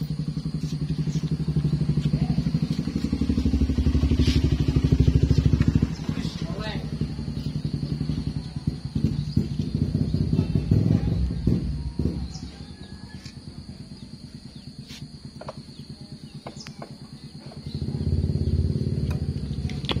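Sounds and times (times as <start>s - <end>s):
truck engine running: 0.0s - 12.5s
birds chirping: 0.0s - 20.0s.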